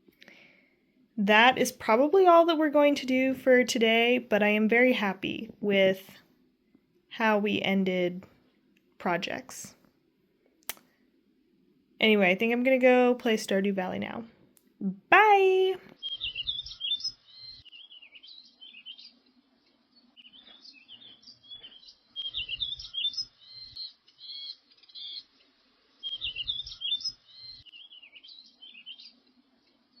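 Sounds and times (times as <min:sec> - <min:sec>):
bird warbling chirps: 0:16.0 - 0:19.2, 0:20.2 - 0:29.2.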